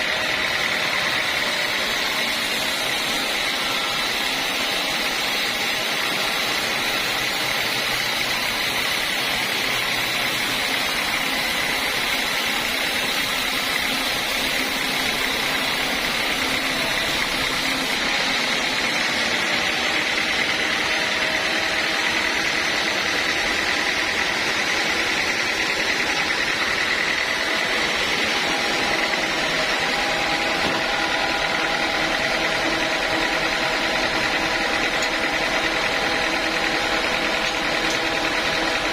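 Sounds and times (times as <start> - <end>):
band sawmill sawing log: 0.0 - 38.9.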